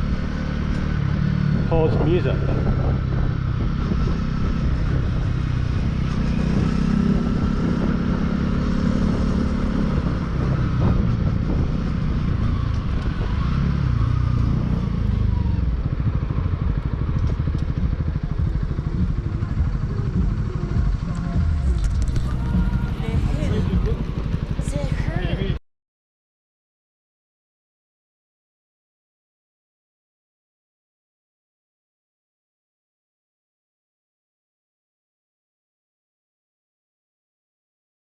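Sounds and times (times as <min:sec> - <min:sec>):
motorcycle engine running: 0:00.0 - 0:25.6.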